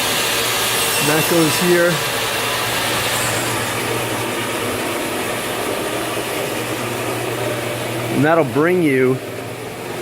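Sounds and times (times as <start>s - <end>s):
air rushing through pipe: 0.0s - 7.8s
constant low hum: 1.6s - 10.0s.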